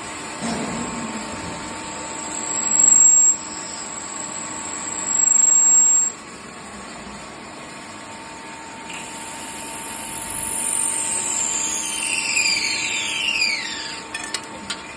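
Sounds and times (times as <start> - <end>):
machine shop noise: 0.0 - 14.9
spindle winding down: 8.9 - 14.8.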